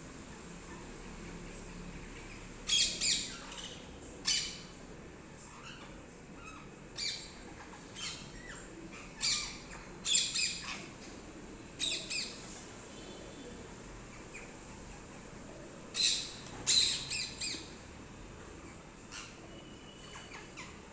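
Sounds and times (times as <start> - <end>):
parrots squawking: 2.3 - 4.7, 5.4 - 11.0, 15.9 - 17.8, 18.6 - 20.9.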